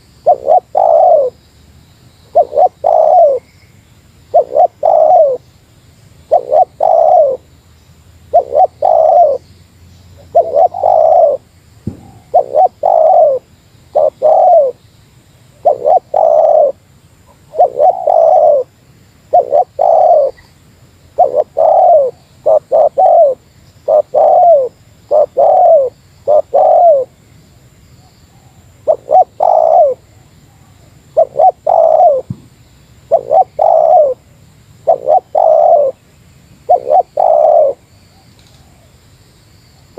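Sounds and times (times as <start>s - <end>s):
dove cooing: 0.2s - 1.4s, 2.3s - 3.5s, 4.3s - 5.4s, 6.3s - 7.5s, 8.3s - 9.4s, 10.2s - 14.8s, 15.6s - 18.7s, 19.3s - 20.5s, 21.1s - 27.2s, 28.3s - 32.3s, 33.0s - 34.2s, 34.8s - 36.0s, 36.7s - 37.8s.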